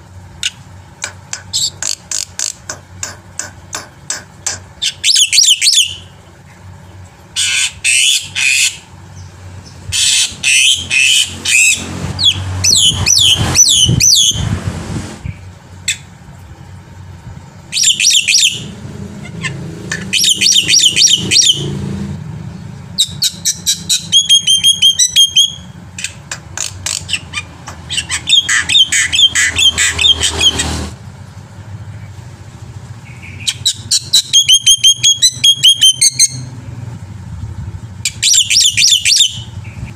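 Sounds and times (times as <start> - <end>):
bird chattering and whistling: 0.4 - 6.2, 7.3 - 14.5, 17.7 - 21.7, 22.9 - 30.8, 33.0 - 36.5, 38.0 - 39.9.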